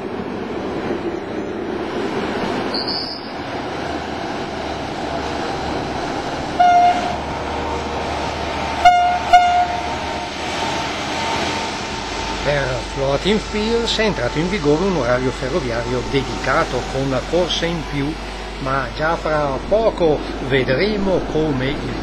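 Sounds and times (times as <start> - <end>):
diesel train rumbling: 0.0 - 22.0
high squeal: 2.7 - 3.4
train horn toots: 6.6 - 7.2, 8.8 - 10.3.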